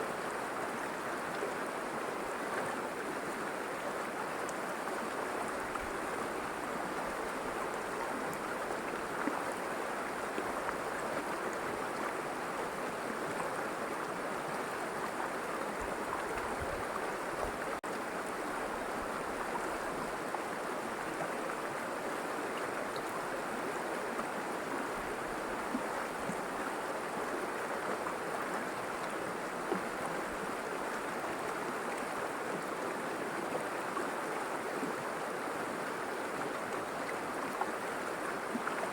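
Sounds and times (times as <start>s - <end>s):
river water rushing and babbling: 0.0s - 38.9s.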